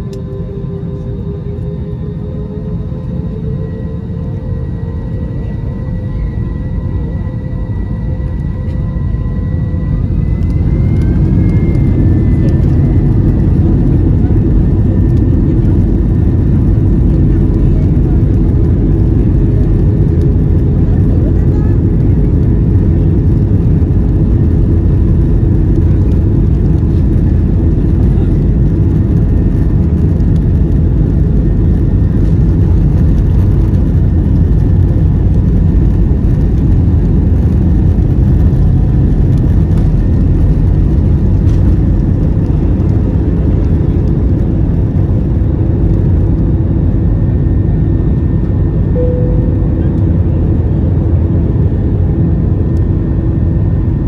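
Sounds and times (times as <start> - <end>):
jet engine cabin rumble: 0.0 - 54.0
faint steady tones: 49.0 - 51.7.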